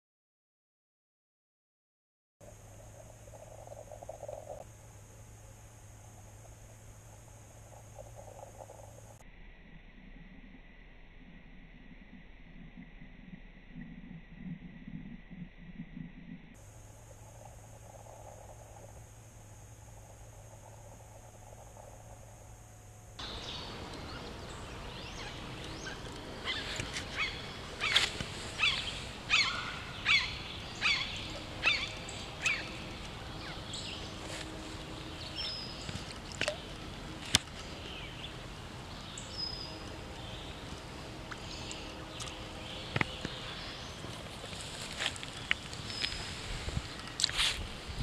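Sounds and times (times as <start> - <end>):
bird calling: 23.2 - 47.5.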